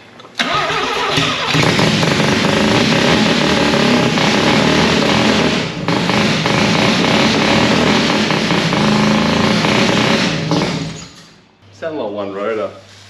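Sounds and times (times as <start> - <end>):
rotary engine running loudly: 1.5 - 10.4.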